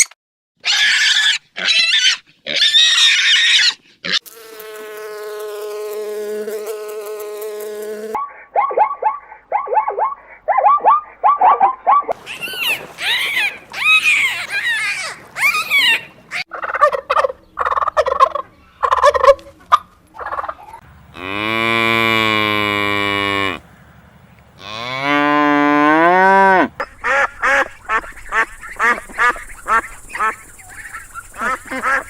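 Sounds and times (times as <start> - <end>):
geese honking: 8.3 - 20.8, 26.5 - 32.0
cow mooing: 21.1 - 23.6, 24.6 - 26.7.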